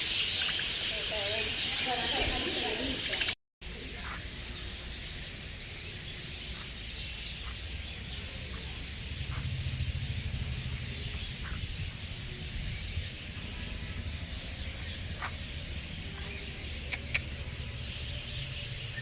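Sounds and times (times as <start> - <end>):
low rumble: 7.6 - 19.0.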